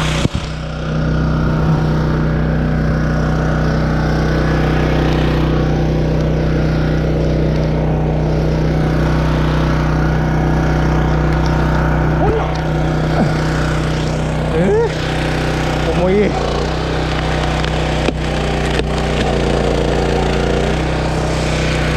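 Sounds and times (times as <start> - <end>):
small engine running: 0.0 - 21.9.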